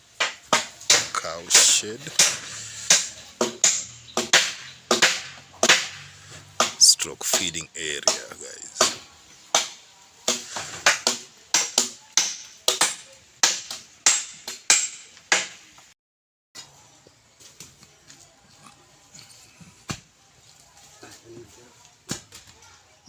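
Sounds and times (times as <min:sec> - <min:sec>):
rapid hammer blows: 0:01.6 - 0:08.9.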